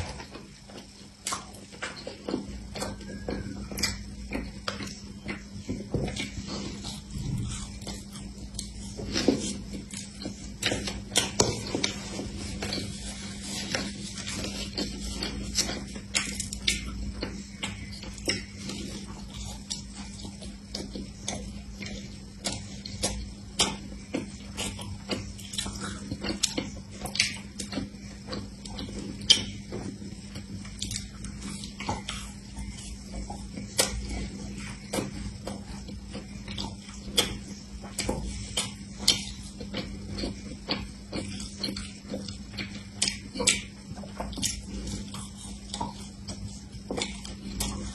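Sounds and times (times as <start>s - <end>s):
crunching and chewing pastry: 0.0s - 47.9s
low hum: 0.0s - 47.9s.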